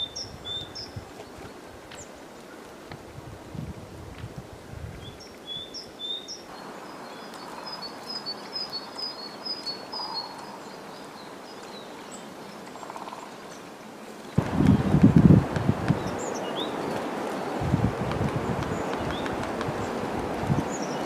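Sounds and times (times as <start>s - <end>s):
quiet forest background: 0.0s - 21.0s
small birds chirping: 5.0s - 21.0s.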